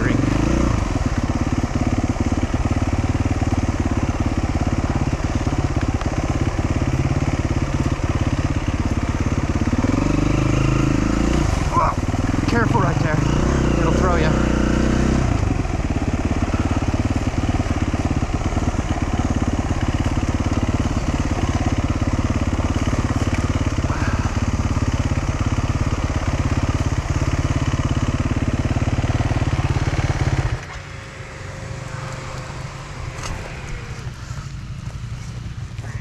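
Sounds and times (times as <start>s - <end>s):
motorcycle engine at low revs: 0.0s - 36.0s.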